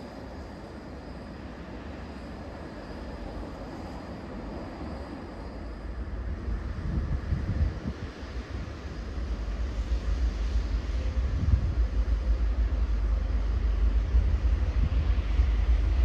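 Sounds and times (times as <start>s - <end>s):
train rumbling: 0.0s - 16.0s
wind buffeting microphone: 5.9s - 16.0s.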